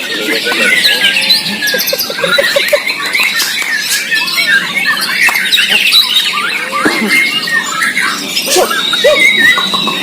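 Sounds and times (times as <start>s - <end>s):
songbirds singing: 0.0s - 10.0s.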